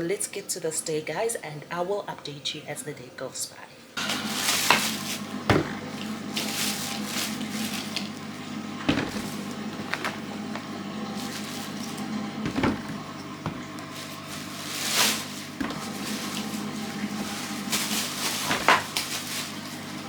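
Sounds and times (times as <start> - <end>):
household objects knocking and clattering: 12.4 - 13.7.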